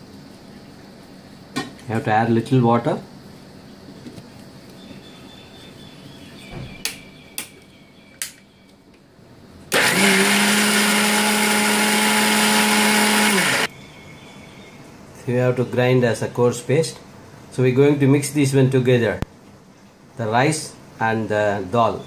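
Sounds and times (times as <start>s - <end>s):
electric blender grinding: 9.7s - 13.7s.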